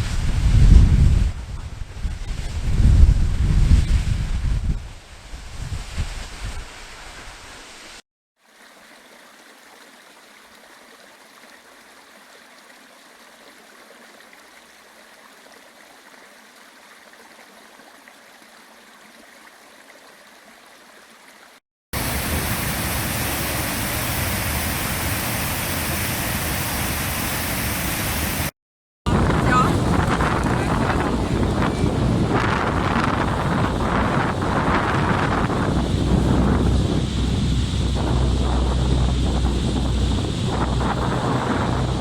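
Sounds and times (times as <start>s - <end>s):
waterfall rushing water: 22.0s - 28.5s, 29.1s - 42.0s.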